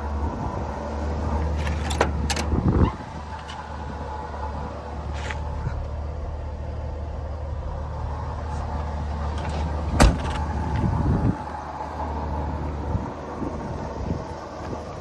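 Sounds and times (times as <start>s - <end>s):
truck engine idling: 0.0s - 15.0s
door slamming shut: 9.4s - 10.8s.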